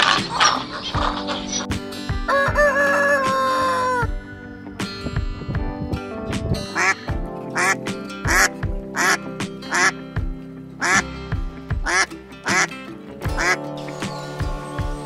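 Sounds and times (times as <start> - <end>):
ducks quacking: 0.0 - 4.1, 6.7 - 10.0, 10.8 - 11.1, 11.8 - 12.8, 13.4 - 13.7
background music with a beat: 0.0 - 15.0.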